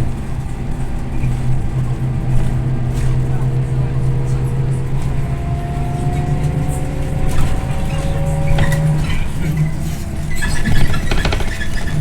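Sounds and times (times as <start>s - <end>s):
bus engine hum: 0.0s - 12.0s
loose rattles: 7.2s - 12.0s.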